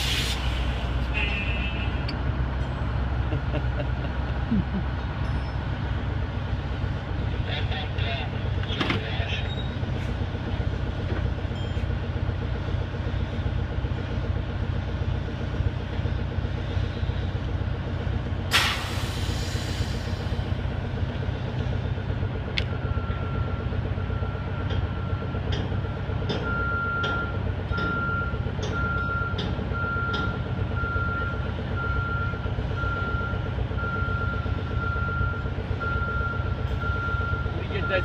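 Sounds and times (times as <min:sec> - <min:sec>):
loud air hiss: 0:00.0 - 0:00.8, 0:18.5 - 0:20.4
diesel crane engine running: 0:00.0 - 0:38.0.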